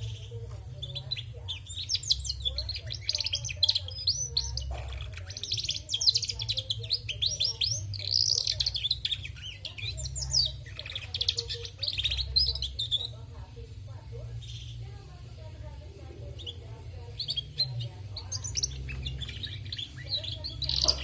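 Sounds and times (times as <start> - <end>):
canary twittering: 0.0 - 21.0.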